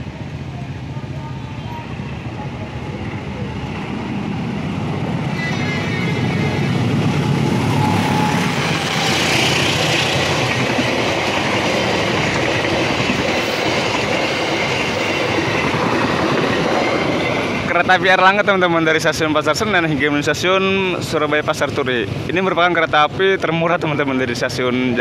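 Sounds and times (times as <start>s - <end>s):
locomotive engine hum: 0.0s - 18.6s
train wheels clattering on rails: 5.6s - 19.2s.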